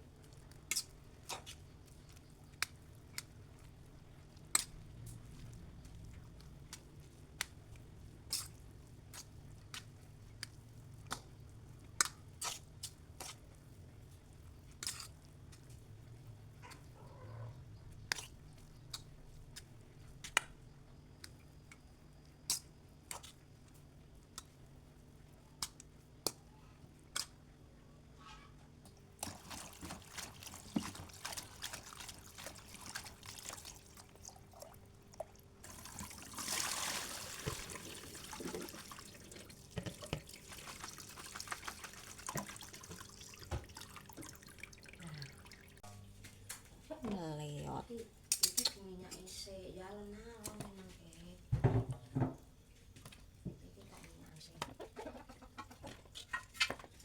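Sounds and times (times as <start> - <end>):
water dripping: 28.9 - 45.9
water trickling and splashing: 28.9 - 46.0.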